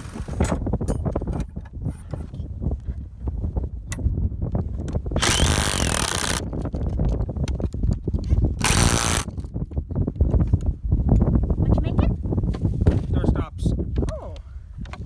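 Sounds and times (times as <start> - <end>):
power tool cutting wood: 5.2 - 6.4, 8.6 - 9.4.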